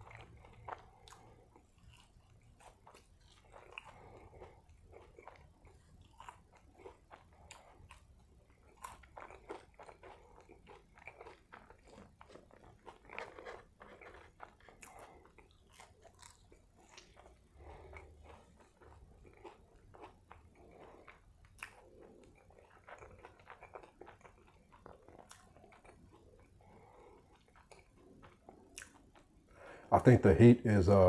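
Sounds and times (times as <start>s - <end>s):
person chewing food: 0.0s - 29.9s.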